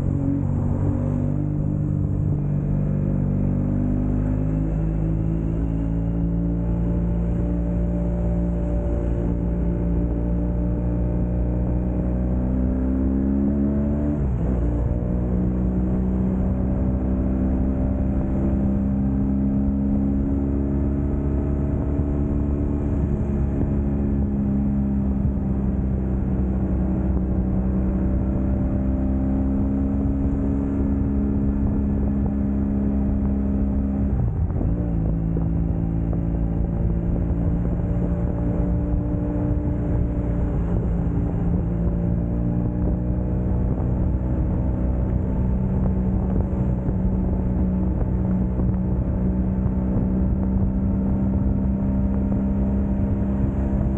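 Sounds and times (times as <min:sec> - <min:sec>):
motorcycle engine running: 0:13.6 - 0:53.9.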